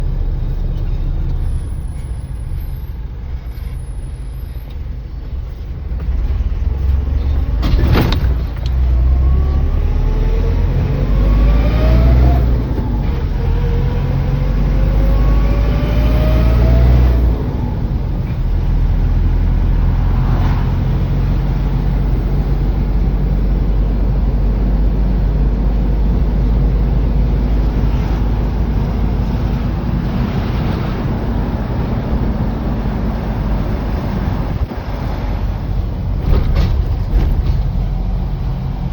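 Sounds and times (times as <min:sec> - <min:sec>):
road noise: 0:00.0 - 0:38.9
truck engine droning: 0:00.0 - 0:38.9.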